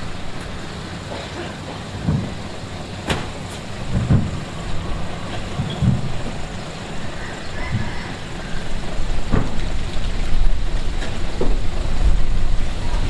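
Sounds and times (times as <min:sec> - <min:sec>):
diesel engine rumble: 0:00.0 - 0:13.0.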